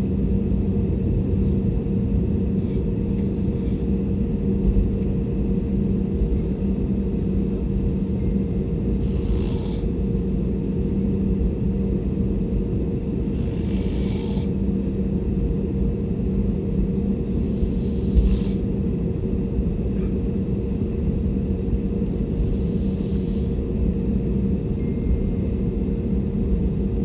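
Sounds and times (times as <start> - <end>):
airplane cabin engine rumble: 0.0 - 27.0
constant low hum: 0.0 - 27.0.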